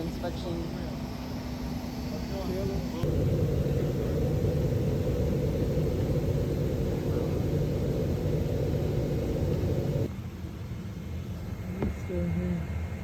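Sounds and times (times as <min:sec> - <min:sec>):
vehicle engine and road rumble: 0:02.9 - 0:10.1.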